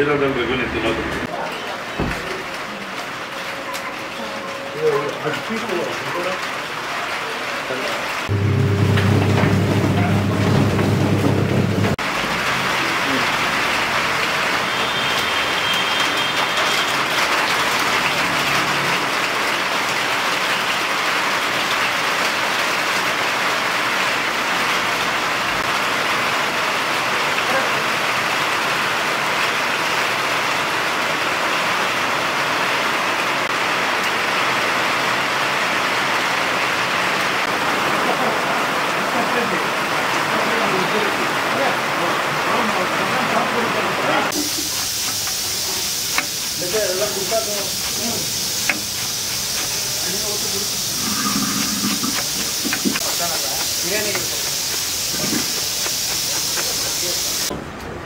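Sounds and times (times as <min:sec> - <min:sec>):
heavy rain: 0:00.0 - 0:57.6
loud low hum: 0:08.3 - 0:12.0.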